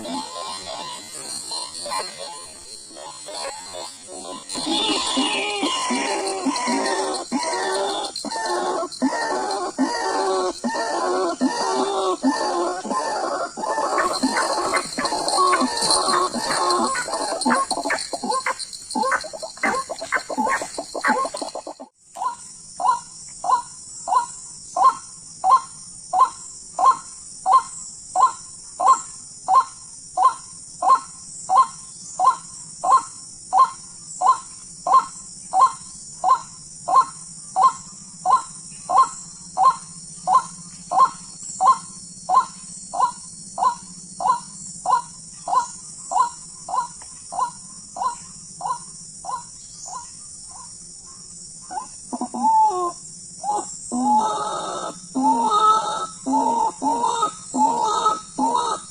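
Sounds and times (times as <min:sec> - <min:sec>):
steady high-pitched hiss: 0:00.0 - 0:58.9
waterhen call: 0:13.8 - 0:21.8.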